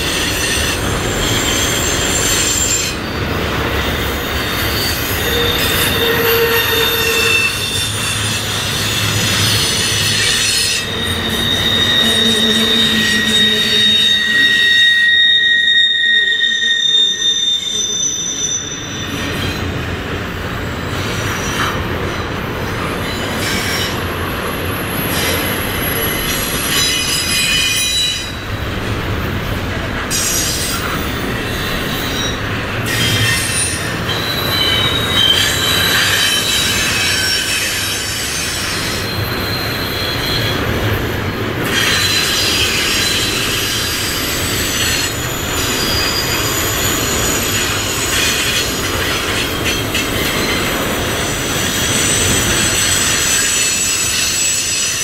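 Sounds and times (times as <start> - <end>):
high-pitched wheel squeal: 0.0 - 19.8, 30.1 - 40.7, 41.6 - 55.0
steel wheels rumbling on rail: 0.0 - 55.0.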